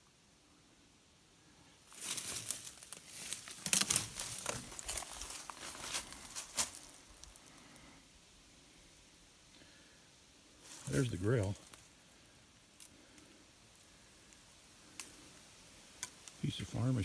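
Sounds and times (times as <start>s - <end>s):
dry brush and leaves rustling: 1.8s - 7.9s, 10.6s - 17.0s
twigs snapping: 1.9s - 7.6s, 12.8s - 15.3s.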